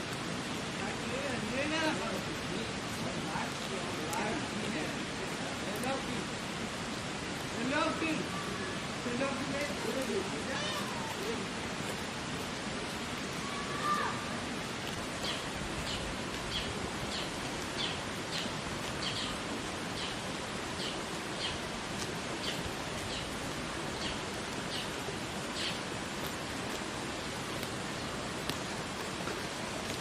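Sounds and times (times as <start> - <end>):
bird chirping: 15.2 - 19.4, 20.8 - 21.6, 24.0 - 25.8.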